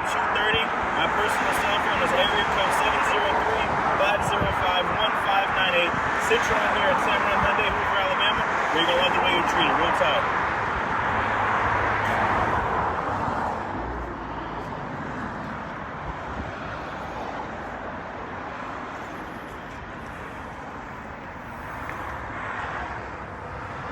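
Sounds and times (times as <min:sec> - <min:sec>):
distant traffic hum: 0:00.0 - 0:23.9
vehicle passing by: 0:08.6 - 0:15.7.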